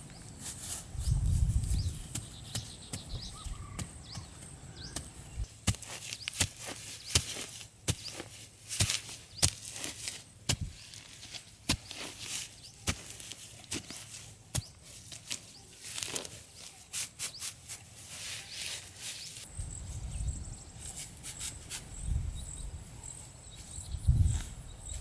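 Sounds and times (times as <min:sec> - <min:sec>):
faint bird chirps: 0:01.7 - 0:05.4, 0:18.3 - 0:25.0.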